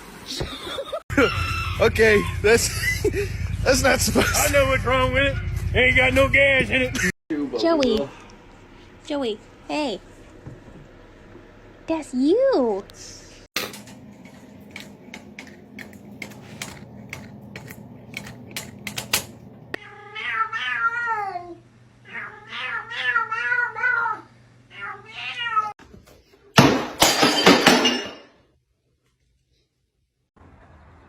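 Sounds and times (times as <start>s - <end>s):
cat meowing: 19.8s - 25.8s.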